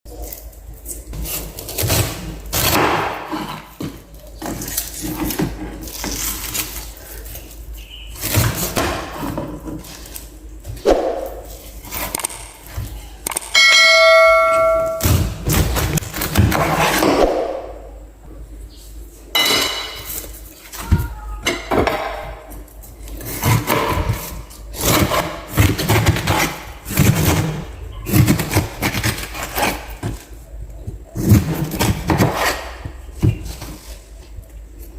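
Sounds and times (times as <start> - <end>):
bell-like ding: 13.6 - 15.2.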